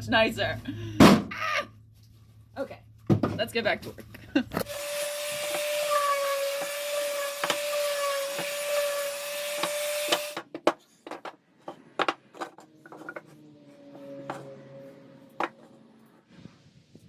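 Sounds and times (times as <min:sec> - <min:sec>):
electric chop saw cutting wood: 0:04.6 - 0:10.5, 0:12.6 - 0:16.2
wood being handled knocks: 0:10.4 - 0:13.4.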